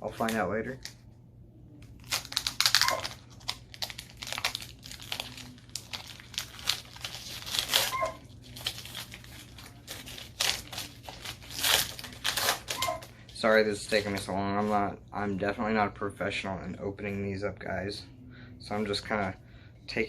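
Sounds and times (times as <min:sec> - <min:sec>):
foil wrapper crinkling and tearing: 0:01.8 - 0:13.2.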